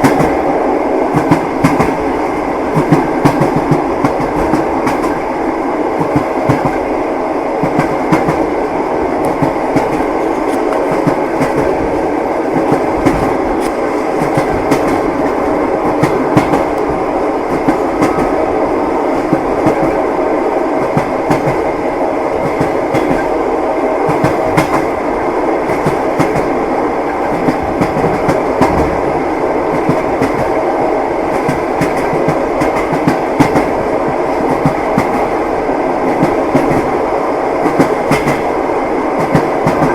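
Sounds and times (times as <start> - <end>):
train wheels clattering: 0.0 - 0.4, 1.1 - 5.3, 6.0 - 6.9, 9.2 - 18.4, 20.8 - 21.7, 22.4 - 23.4, 24.0 - 25.0, 25.6 - 29.0, 29.7 - 30.6, 31.3 - 35.4, 36.0 - 37.0, 37.6 - 38.5, 39.2 - 39.9.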